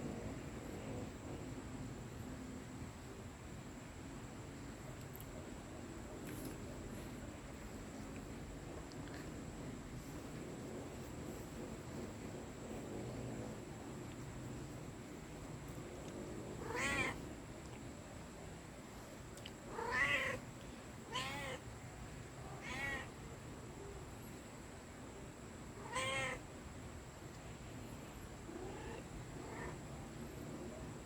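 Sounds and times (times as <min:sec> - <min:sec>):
cat meowing: 0:16.6 - 0:17.2, 0:19.7 - 0:20.4, 0:21.1 - 0:21.6, 0:22.6 - 0:23.1, 0:25.8 - 0:26.4.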